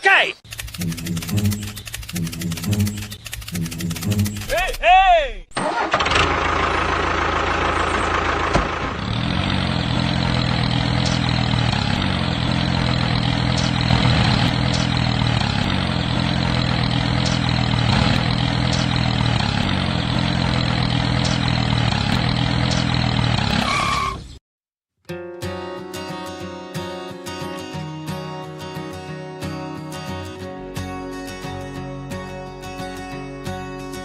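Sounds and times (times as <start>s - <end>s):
tractor engine idling: 0.5s - 4.7s, 5.6s - 24.2s
guitar music: 0.7s - 4.6s, 9.9s - 23.1s, 25.0s - 34.0s.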